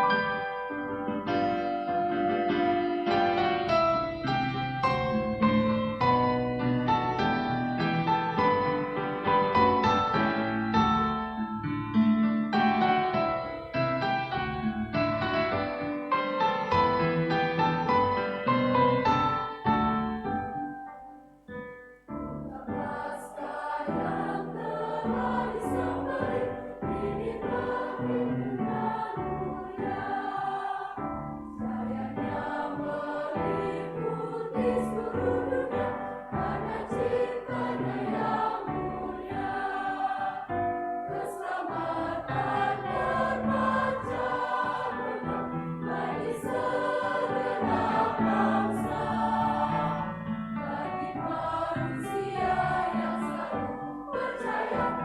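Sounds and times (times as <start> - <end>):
church choir singing a hymn: 0.0 - 20.4, 22.2 - 55.0.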